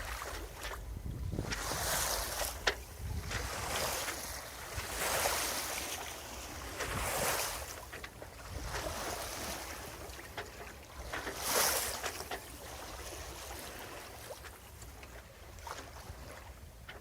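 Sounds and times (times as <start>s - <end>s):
wind on microphone: 0.0s - 5.6s, 6.5s - 7.6s
water splashing along hull: 0.0s - 17.0s.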